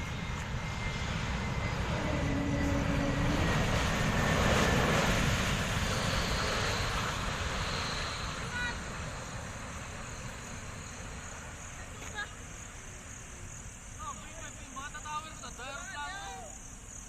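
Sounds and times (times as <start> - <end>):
high whine sinking in pitch: 0.0 - 11.4
jet engines roaring: 0.0 - 16.9.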